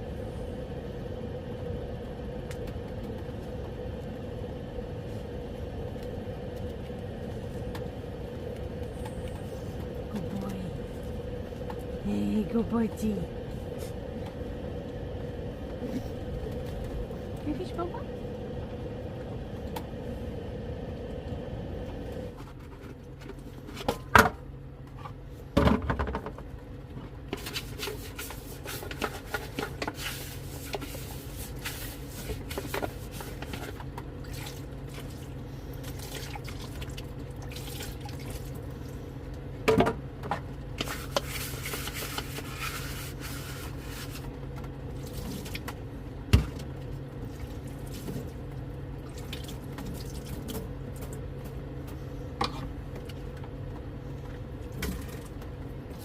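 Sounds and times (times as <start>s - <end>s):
steady low hum: 0.0s - 56.0s
water splashing in a sink: 35.8s - 38.6s, 49.0s - 50.6s.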